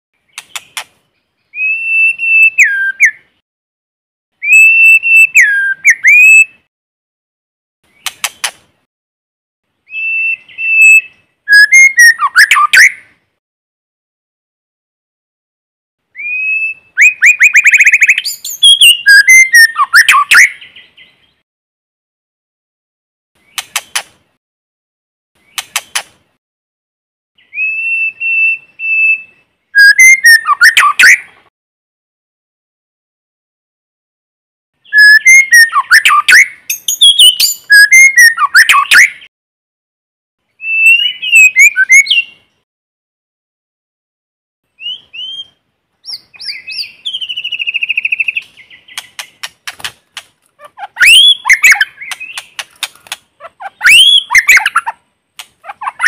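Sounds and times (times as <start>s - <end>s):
bird whistling song: 0.2s - 3.3s, 4.4s - 6.7s, 9.8s - 13.1s, 16.1s - 21.4s, 27.4s - 31.3s, 34.8s - 39.3s, 40.6s - 42.6s, 44.8s - 49.5s, 50.8s - 52.8s, 53.5s - 54.9s.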